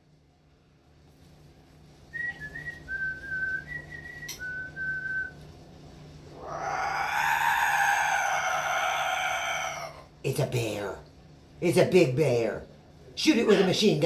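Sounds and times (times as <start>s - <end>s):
harsh drawn-out bird call: 6.3s - 10.1s.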